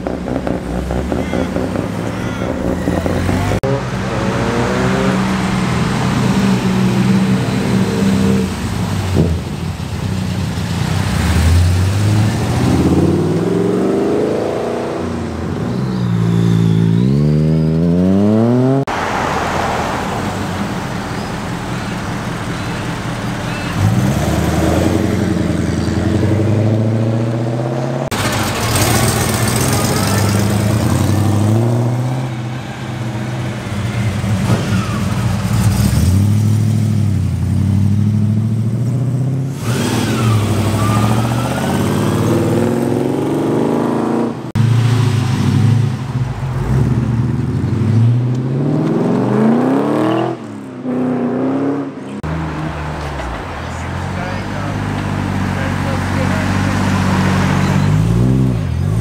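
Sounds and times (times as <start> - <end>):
car engines revving: 0.0 - 59.0
car pulling away: 2.6 - 59.0.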